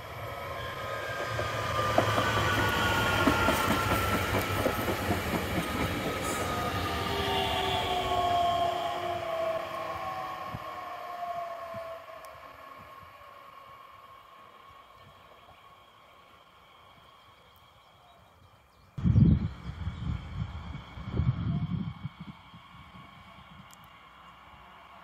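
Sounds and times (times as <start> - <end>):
train wheels rumbling on rails: 0.0 - 17.8.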